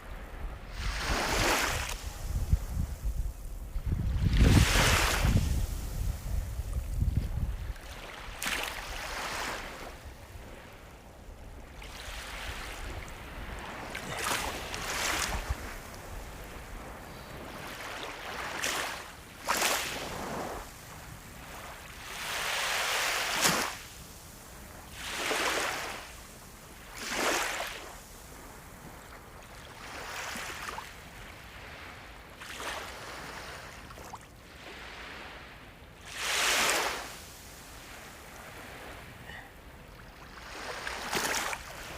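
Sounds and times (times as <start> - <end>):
sea waves breaking: 0.3 - 3.3, 4.1 - 6.9, 7.5 - 10.8, 11.4 - 24.0, 24.9 - 26.2, 26.8 - 28.0, 36.0 - 41.9.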